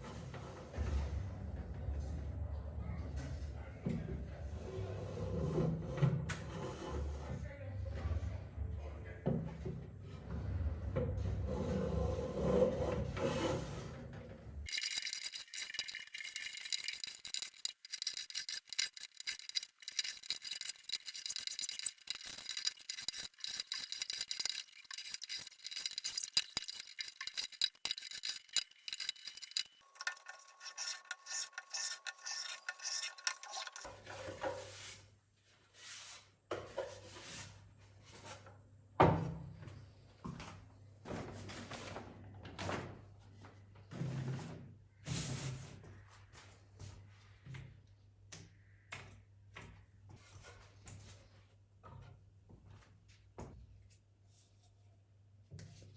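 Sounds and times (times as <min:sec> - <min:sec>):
hand tools scraping wood: 0:14.7 - 0:34.7.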